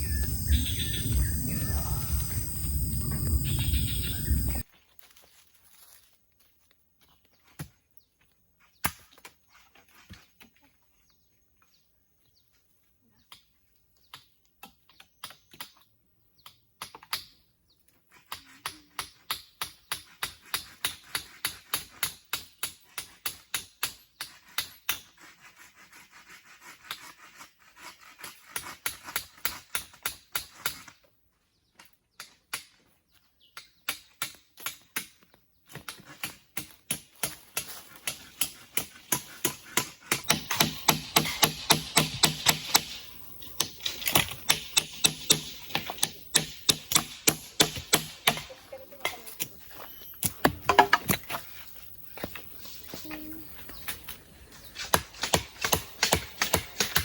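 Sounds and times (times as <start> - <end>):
tool striking wood: 39.2 - 48.5, 50.2 - 51.4.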